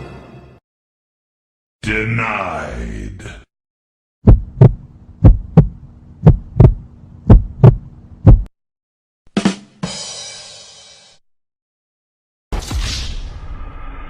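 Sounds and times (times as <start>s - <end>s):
heartbeat thumps: 4.2s - 8.5s
steady low hum: 4.3s - 8.5s.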